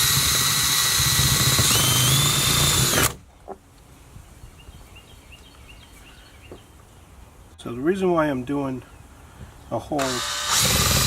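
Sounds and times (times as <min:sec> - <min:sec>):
power drill whining: 0:00.0 - 0:03.2, 0:10.0 - 0:11.0.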